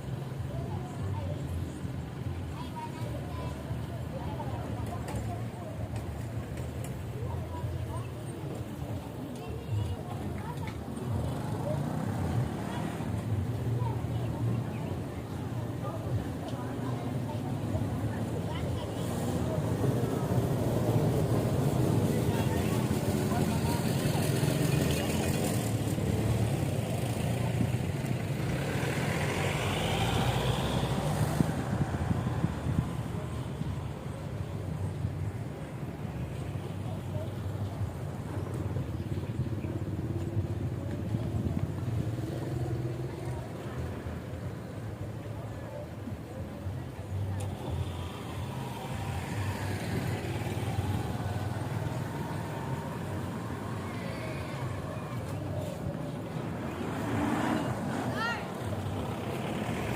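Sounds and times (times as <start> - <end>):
road and wind noise: 0.0 - 59.9.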